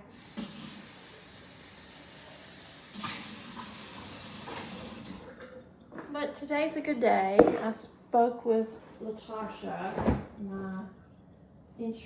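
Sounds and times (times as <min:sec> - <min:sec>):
water running from tap: 0:00.0 - 0:05.4.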